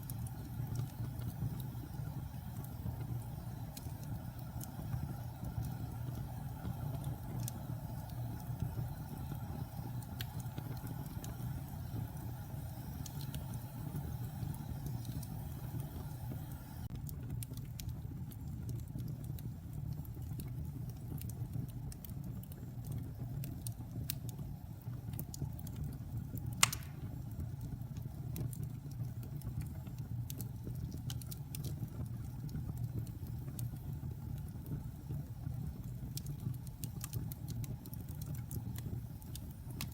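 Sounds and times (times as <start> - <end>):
fire crackling: 0.0 - 39.9
fire rumbling in fireplace: 0.0 - 39.9
loud sharp pop of fire: 26.6 - 27.2.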